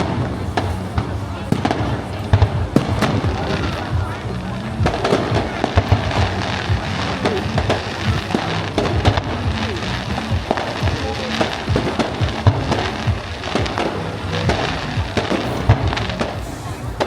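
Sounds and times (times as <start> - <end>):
fireworks banging and crackling: 0.0 - 17.0
music with low bass: 0.0 - 17.0.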